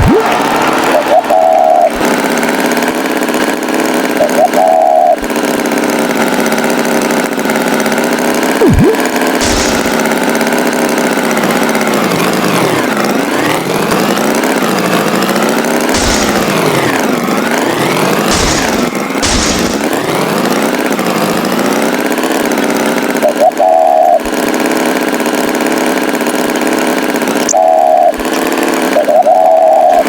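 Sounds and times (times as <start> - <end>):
tractor engine running: 0.0 - 30.0
low thumps: 8.6 - 10.5, 16.0 - 20.3.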